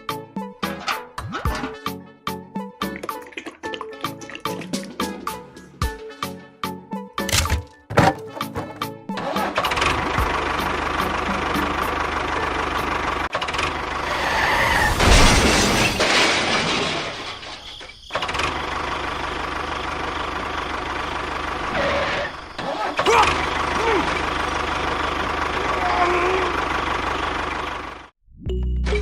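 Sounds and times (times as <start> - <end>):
engine running: 7.3 - 14.4, 18.2 - 28.1.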